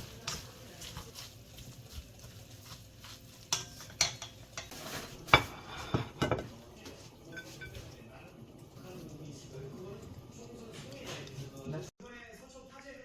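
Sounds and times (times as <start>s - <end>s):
utensils clinking against dishes: 3.0s - 8.0s.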